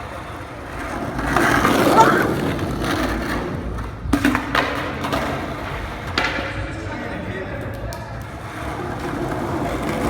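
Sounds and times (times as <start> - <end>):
skateboard clacks: 0.0 - 6.9
skateboard wheels rolling on concrete: 0.0 - 10.0.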